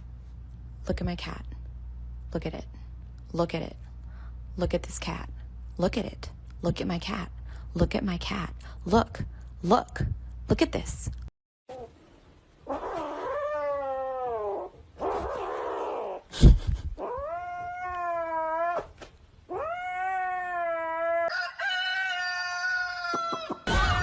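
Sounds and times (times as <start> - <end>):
cat yowling: 12.7 - 16.2, 17.0 - 21.3.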